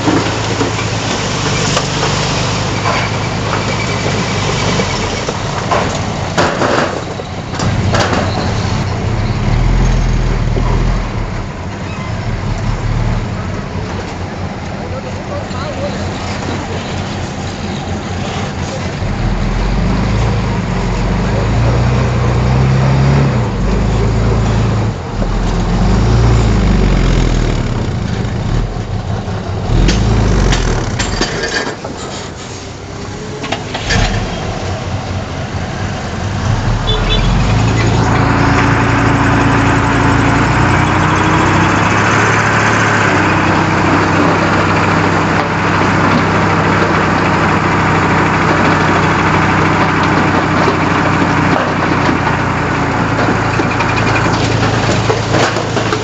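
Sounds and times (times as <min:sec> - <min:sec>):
heavy machinery engine running: 0:00.0 - 0:56.0.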